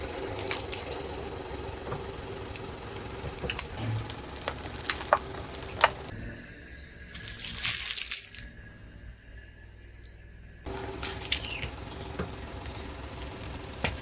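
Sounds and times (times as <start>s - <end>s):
sharp crackles and clicks: 0.0s - 6.1s, 10.0s - 14.0s
soda fizzing and splashing: 0.0s - 6.1s, 7.1s - 8.5s.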